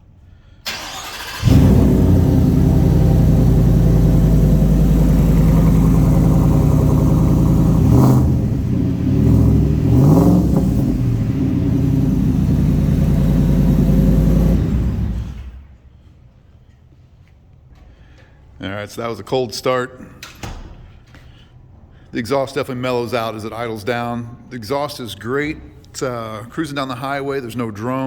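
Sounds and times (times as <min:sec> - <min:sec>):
engine revving: 0:00.7 - 0:15.7
truck engine cranking: 0:00.7 - 0:15.7
truck engine fast idle: 0:00.7 - 0:15.7.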